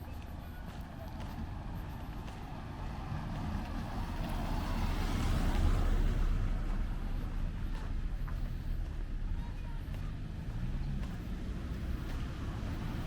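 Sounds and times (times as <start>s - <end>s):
vehicle driving past: 1.2s - 8.6s.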